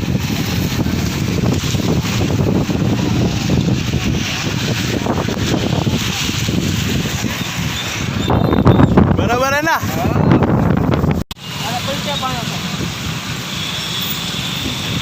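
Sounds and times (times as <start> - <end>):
wind buffeting microphone: 0.0 - 11.2
heavy rain: 0.0 - 15.0.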